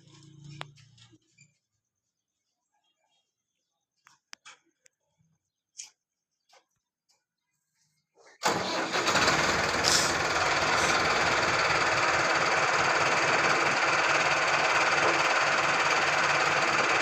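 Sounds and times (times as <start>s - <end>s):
tractor engine running: 8.4s - 17.0s.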